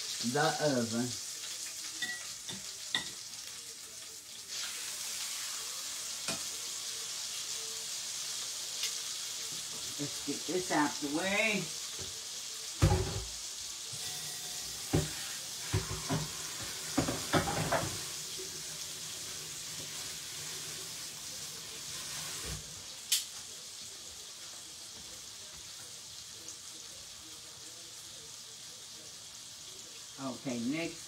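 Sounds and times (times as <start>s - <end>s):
chicken sizzling in a pot: 0.0s - 31.0s.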